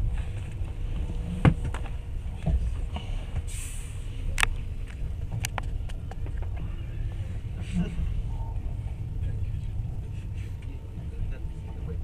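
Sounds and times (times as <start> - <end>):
train low rumble: 0.0 - 12.0
brief hiss: 3.5 - 4.1.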